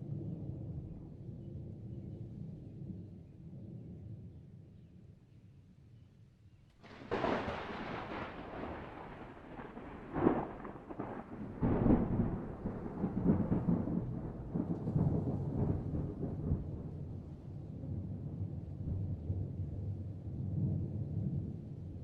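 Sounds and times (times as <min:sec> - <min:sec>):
thunder rumbling and cracking: 0:06.8 - 0:22.0.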